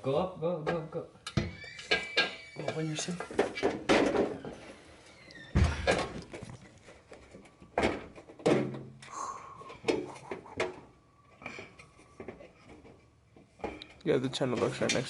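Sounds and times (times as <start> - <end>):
dull metallic knocks and clunks: 0.6 - 4.8.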